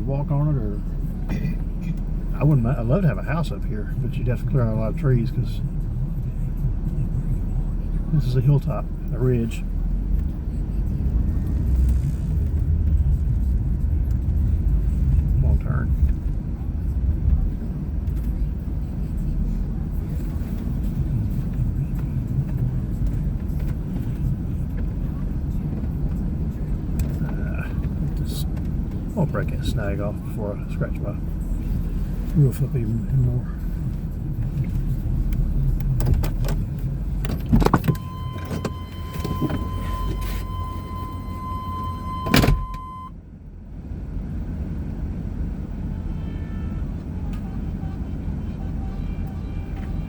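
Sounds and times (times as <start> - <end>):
car engine running: 0.0 - 46.0
car driving through snow: 9.3 - 29.1.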